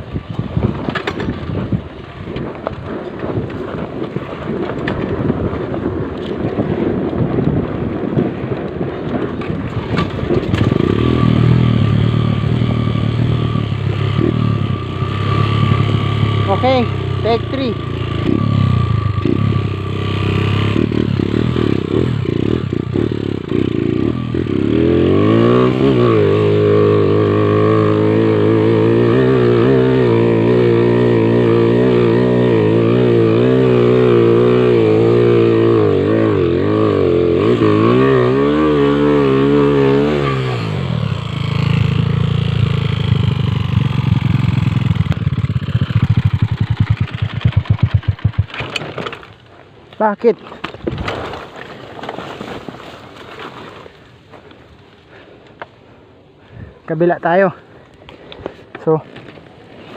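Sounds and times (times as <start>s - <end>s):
motorcycle engine revving: 9.5s - 49.4s.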